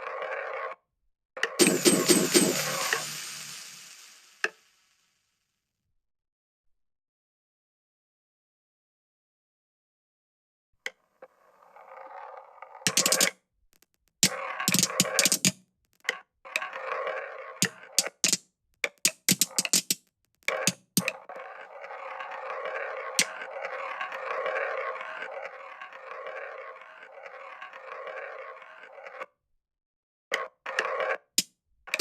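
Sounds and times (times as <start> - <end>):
marbles rolling along track: 0.0 - 0.8, 1.4 - 4.9, 11.3 - 29.3
marbles clicking and knocking: 1.5 - 4.8, 12.9 - 29.1.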